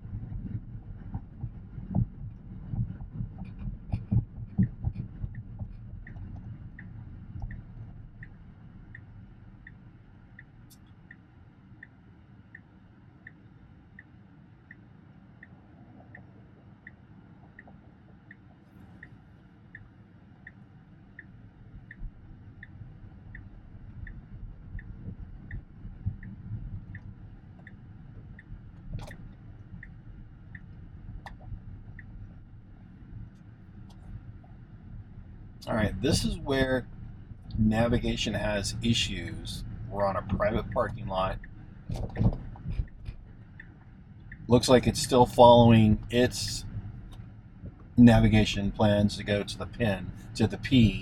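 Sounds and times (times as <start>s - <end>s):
low cabin rumble: 0.0s - 51.0s
turn signal ticking: 0.0s - 51.0s
thuds: 41.9s - 43.2s.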